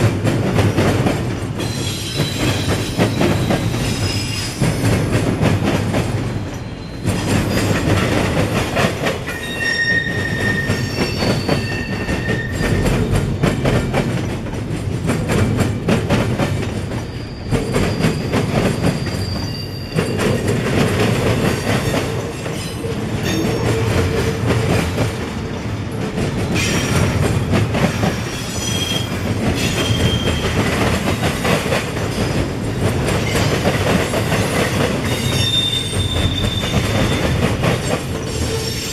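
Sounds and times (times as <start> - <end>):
freight train clattering over rails: 0.0 - 38.9
high wheel squeals: 9.3 - 13.0, 17.0 - 20.2, 35.1 - 37.3.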